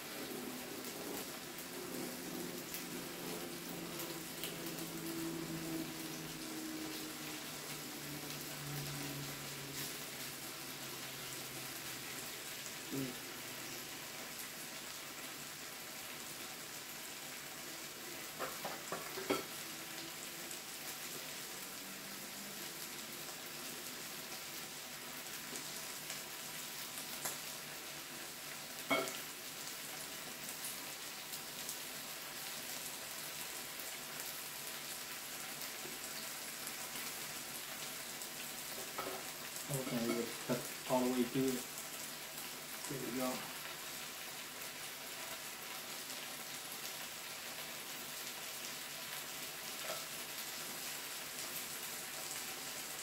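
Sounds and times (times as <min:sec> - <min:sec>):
meat sizzling in a pan: 0:00.0 - 0:53.0.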